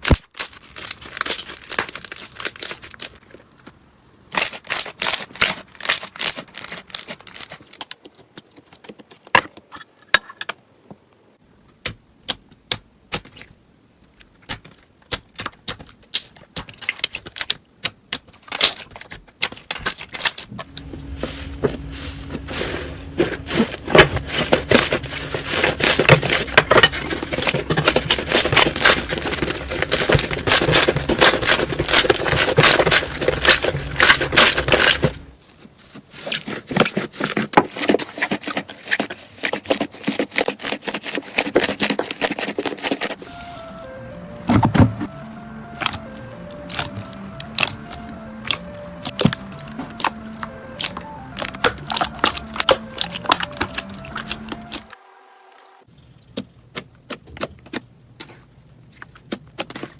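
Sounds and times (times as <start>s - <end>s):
slime clicking and crackling: 14.3s - 20.8s, 45.7s - 54.8s, 56.3s - 59.9s.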